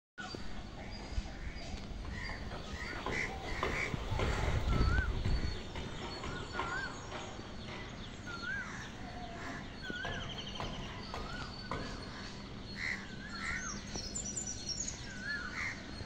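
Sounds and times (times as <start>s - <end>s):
birds calling: 0.2s - 16.0s.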